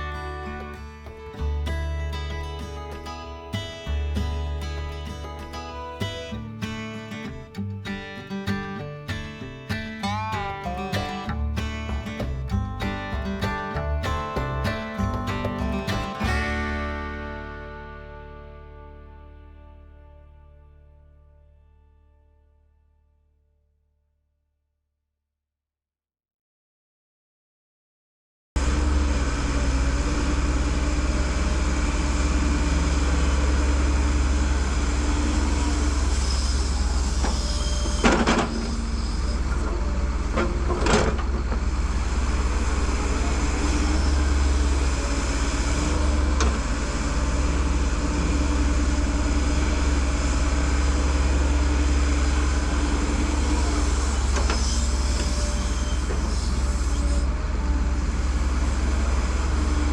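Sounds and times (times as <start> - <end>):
heavy machine engine running: 10.1 - 19.7, 28.6 - 59.9
sharp metallic knocks: 10.4 - 16.5.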